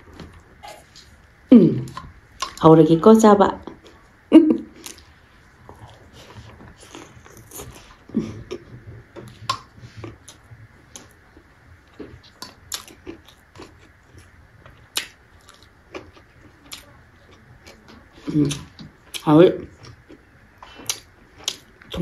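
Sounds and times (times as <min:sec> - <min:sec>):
close-up chewing: 0:03.6 - 0:22.0.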